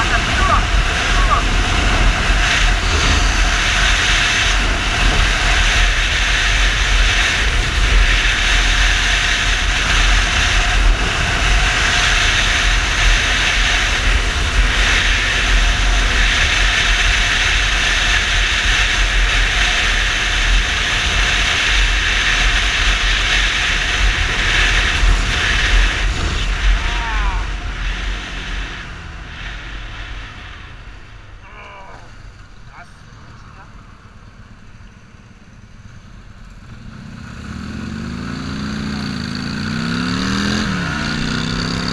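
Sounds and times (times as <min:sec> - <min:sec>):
wind rushing over microphone: 0:00.0 - 0:31.4
motorcycle engine running: 0:00.0 - 0:41.9.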